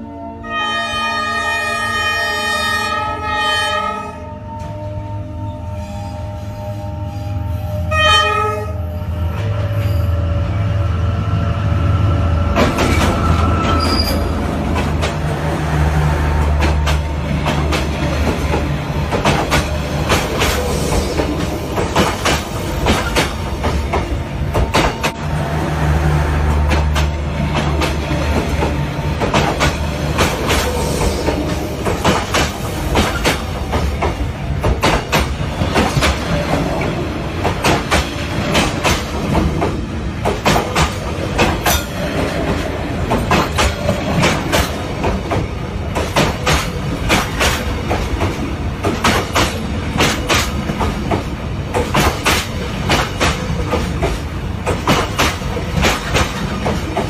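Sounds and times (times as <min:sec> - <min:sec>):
train rumbling along track: 0:00.0 - 0:57.0
wheels clacking over rail joints: 0:26.4 - 0:57.0.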